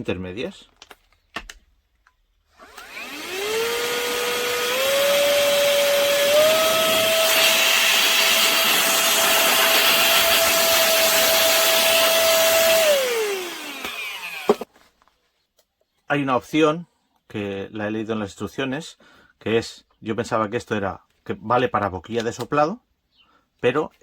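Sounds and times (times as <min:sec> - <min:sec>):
vacuum blower motor whining: 0:02.6 - 0:14.7.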